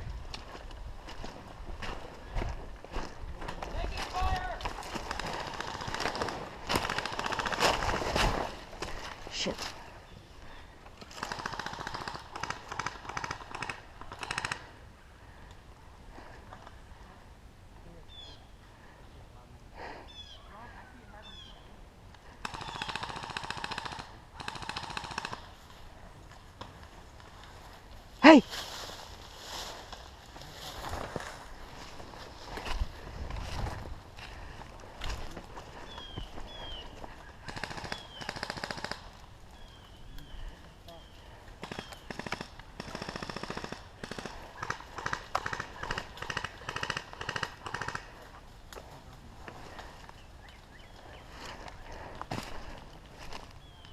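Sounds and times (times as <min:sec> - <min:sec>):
airsoft gun automatic bursts: 0:04.9 - 0:08.0, 0:11.2 - 0:14.6, 0:22.4 - 0:25.5, 0:37.5 - 0:39.1, 0:41.6 - 0:48.1.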